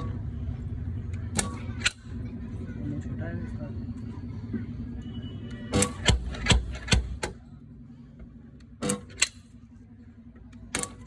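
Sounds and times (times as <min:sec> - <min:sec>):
sharp knocks: 0:05.8 - 0:07.3.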